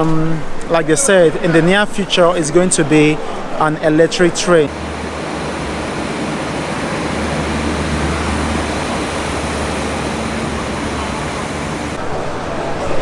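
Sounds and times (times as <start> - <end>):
diesel locomotive engine drone: 4.4 - 12.0
moving train rumble: 4.5 - 12.0.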